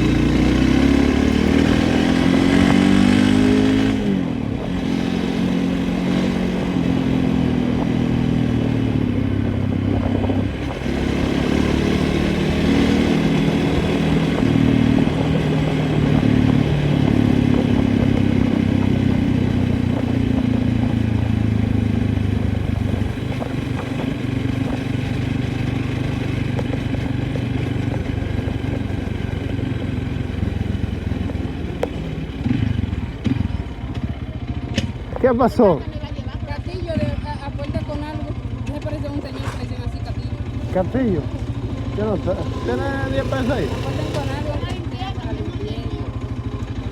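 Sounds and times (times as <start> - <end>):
small engine running: 8.5 - 46.9.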